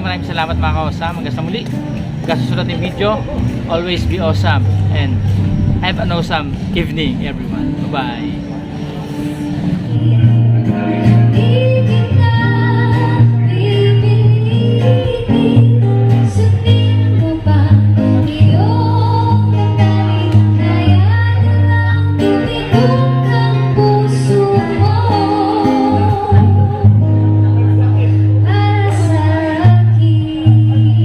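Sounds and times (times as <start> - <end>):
acoustic guitar: 0.0 - 31.0
bass line: 0.0 - 31.0
person singing: 9.6 - 27.3.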